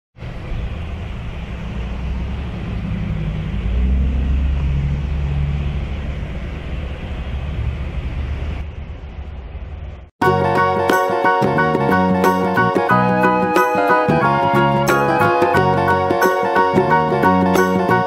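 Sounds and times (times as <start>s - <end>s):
low rumble: 0.2s - 10.1s.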